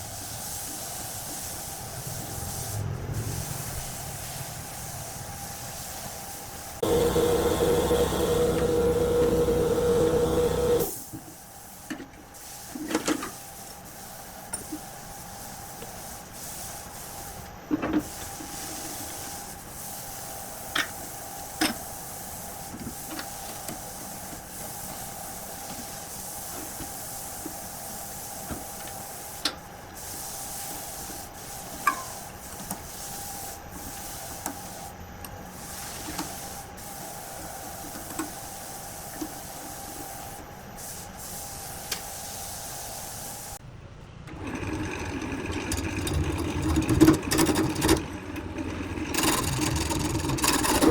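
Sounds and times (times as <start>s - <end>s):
small machine humming with hiss: 0.0s - 43.6s.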